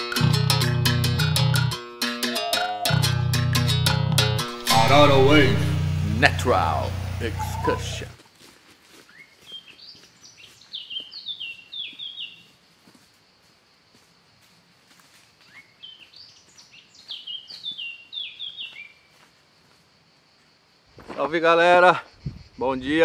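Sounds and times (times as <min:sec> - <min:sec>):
songbird singing: 0:06.4 - 0:08.2, 0:09.1 - 0:12.5, 0:15.4 - 0:19.1.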